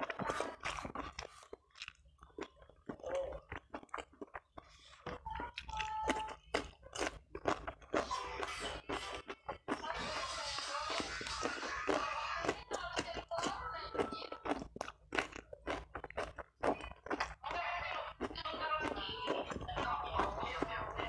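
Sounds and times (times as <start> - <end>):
person chewing crunchy food: 0.0 - 21.0.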